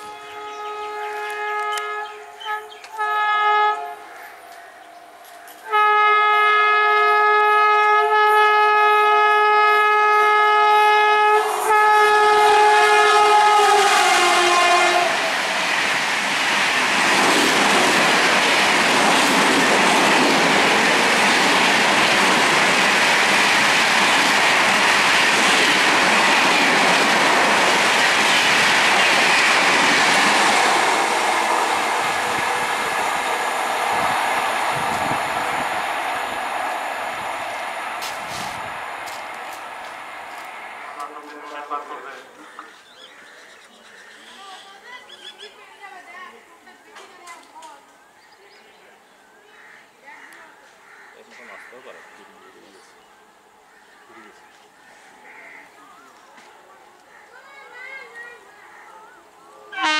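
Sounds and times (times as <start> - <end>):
train air horn blasts: 0.0 - 4.1, 5.6 - 15.8
train coaches rushing past: 0.0 - 43.8.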